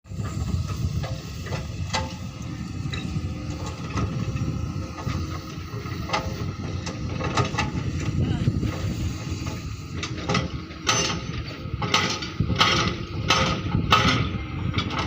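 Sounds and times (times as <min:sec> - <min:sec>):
hydraulic rock breaker pounding: 0:00.1 - 0:15.0.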